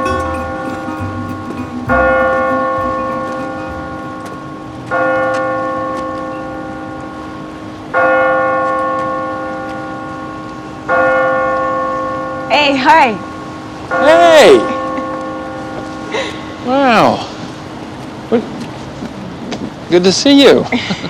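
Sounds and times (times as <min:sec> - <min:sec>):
large bell tolling: 0:00.0 - 0:16.6.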